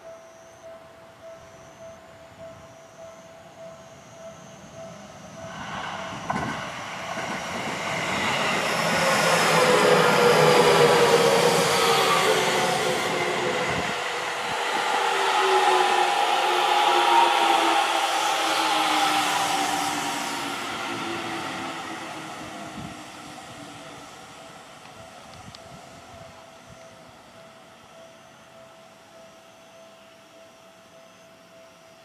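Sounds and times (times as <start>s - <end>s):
train motor whine: 1.4s - 31.7s
train wheels rumbling on rails: 4.0s - 27.5s.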